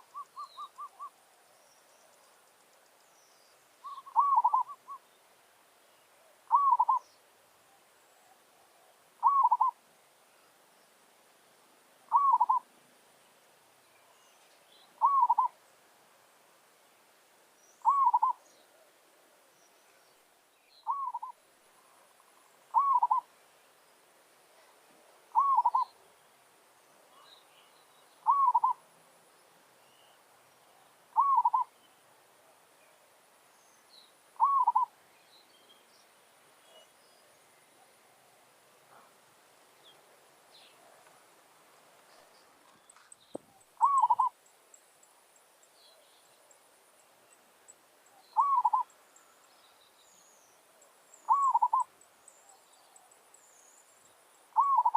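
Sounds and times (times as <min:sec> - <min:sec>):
small birds chirping: 0:00.0 - 0:11.0, 0:12.1 - 0:15.7, 0:16.9 - 0:54.9
dove cooing: 0:03.8 - 0:04.9, 0:06.5 - 0:07.0, 0:08.3 - 0:09.8, 0:12.1 - 0:12.7, 0:15.0 - 0:15.6, 0:17.8 - 0:18.9, 0:20.9 - 0:21.4, 0:22.7 - 0:23.3, 0:25.3 - 0:25.9, 0:28.2 - 0:28.8, 0:31.1 - 0:31.7, 0:34.4 - 0:34.9, 0:43.8 - 0:44.4, 0:48.4 - 0:48.9, 0:51.3 - 0:51.9, 0:54.6 - 0:54.9.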